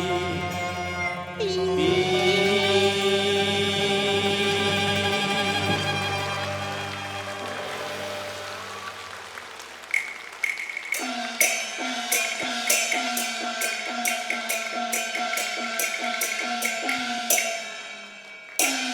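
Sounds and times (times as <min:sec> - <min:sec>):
gongs and cymbals striking: 0:10.5 - 0:18.9.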